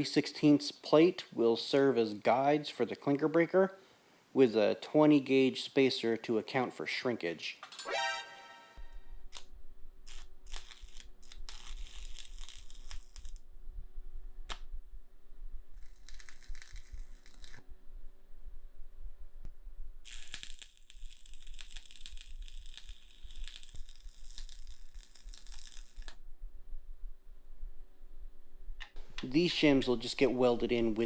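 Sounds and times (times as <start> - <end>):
steady low hum: 8.8 - 20.1, 26.0 - 31.0
arc welding crackling: 9.3 - 13.5, 15.7 - 17.6, 20.0 - 26.2.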